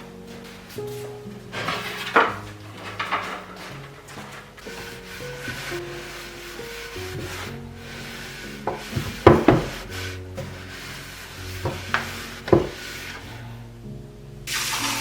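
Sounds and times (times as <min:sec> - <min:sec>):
kitchen items scraping: 0:00.0 - 0:13.4
soft instrumental music: 0:00.0 - 0:15.0
sharp knocks: 0:08.7 - 0:10.6.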